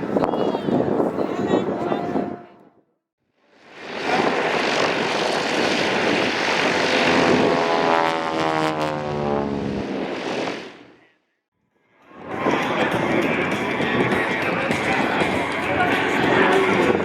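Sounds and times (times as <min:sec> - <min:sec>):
propeller airplanes flying past: 0:03.6 - 0:11.1, 0:12.3 - 0:17.0.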